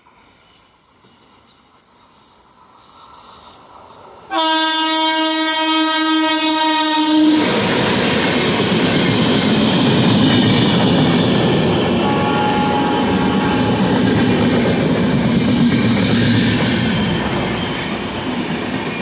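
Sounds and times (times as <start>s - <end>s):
rush of passing train coaches: 0.0s - 19.0s
train horn blast: 4.3s - 7.6s, 11.9s - 14.1s.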